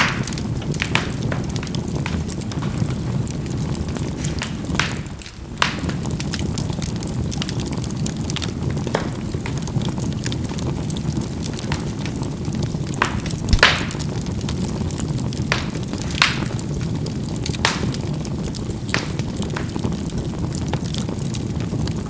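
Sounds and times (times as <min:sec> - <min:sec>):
charcoal fire rumbling: 0:00.0 - 0:22.0
fire crackles and pops: 0:00.0 - 0:22.0.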